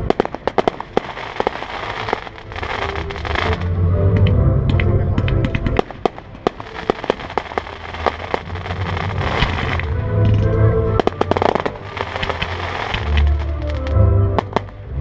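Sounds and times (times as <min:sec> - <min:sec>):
fireworks bursting and crackling: 0:00.0 - 0:15.0
music with heavy bass: 0:06.6 - 0:15.0.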